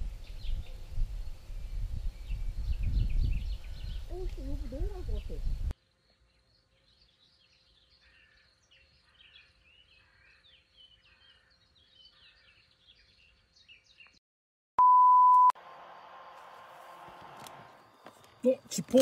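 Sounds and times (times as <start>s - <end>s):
birds chirping: 0.1s - 14.2s, 16.2s - 19.0s
test tone beep: 14.8s - 15.6s.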